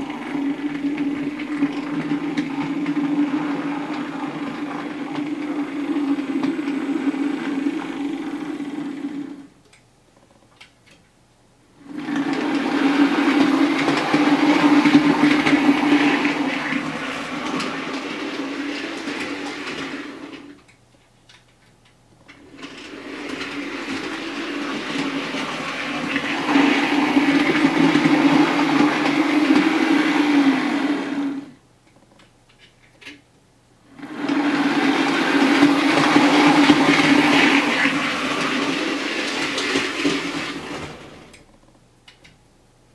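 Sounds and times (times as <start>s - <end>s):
wheels rattling over rail joints: 0.0s - 9.0s, 11.9s - 20.6s, 22.3s - 31.2s, 34.0s - 41.4s
model train motor hum: 22.3s - 31.5s, 34.0s - 41.4s.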